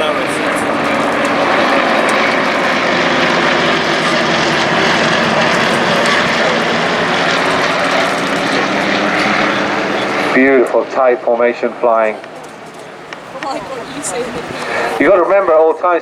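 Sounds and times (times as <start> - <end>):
propeller aircraft droning: 0.0 - 16.0.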